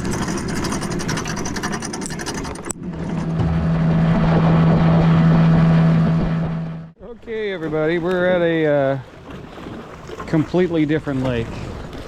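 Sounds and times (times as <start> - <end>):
motorboat engine running: 0.0 - 8.1.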